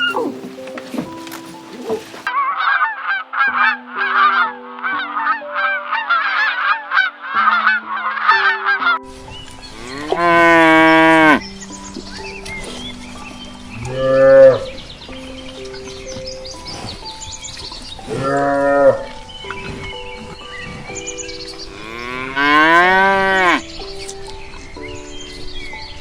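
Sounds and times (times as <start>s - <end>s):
poultry calling: 0.0s - 9.0s, 9.6s - 11.4s, 18.1s - 23.8s
cow mooing: 9.7s - 11.4s, 21.7s - 23.6s.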